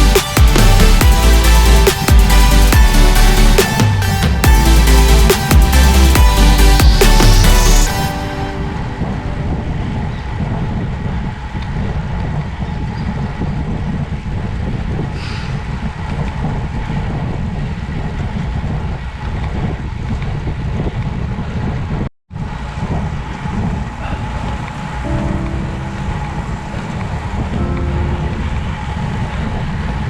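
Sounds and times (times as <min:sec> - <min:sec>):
wind over microphone: 0:09.4 - 0:24.2
low rumble: 0:23.5 - 0:30.0.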